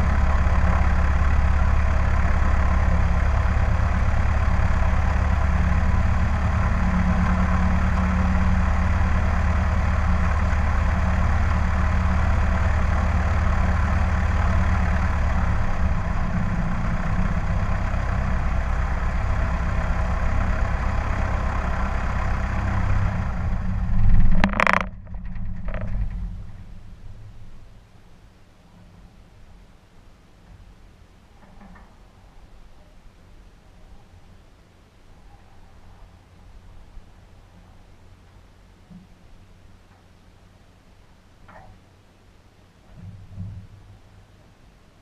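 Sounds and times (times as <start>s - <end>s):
small plane engine running: 0.0s - 26.5s.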